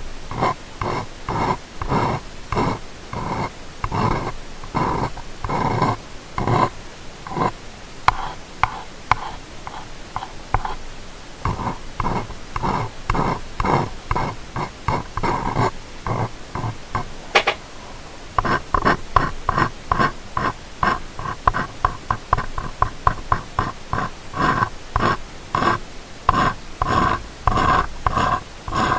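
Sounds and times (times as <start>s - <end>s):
sharp click: 17.3s - 17.7s.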